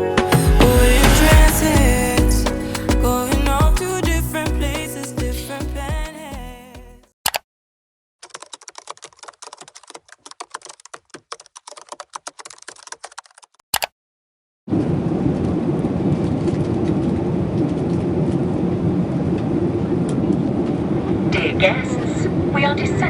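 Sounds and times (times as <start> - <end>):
keyboard typing: 0.0 - 6.9, 8.2 - 13.9.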